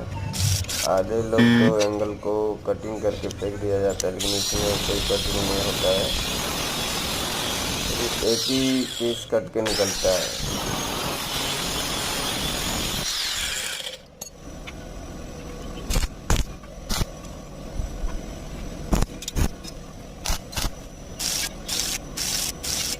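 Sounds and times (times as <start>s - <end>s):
angle grinder on steel: 4.0s - 14.0s, 20.2s - 22.9s.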